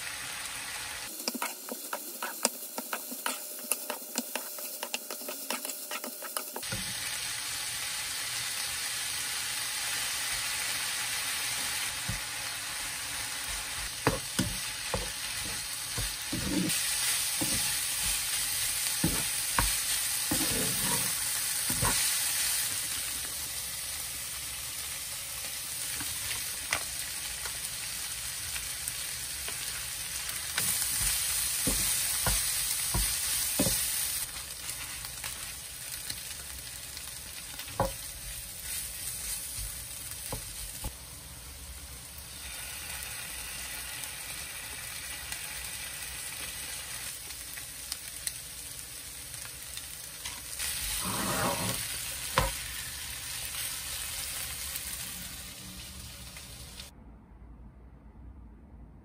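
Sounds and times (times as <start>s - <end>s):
meat sizzling in a wok: 0.0s - 56.9s
spatula scraping a pan: 1.2s - 7.0s, 14.0s - 22.1s, 30.6s - 34.0s, 50.2s - 52.5s.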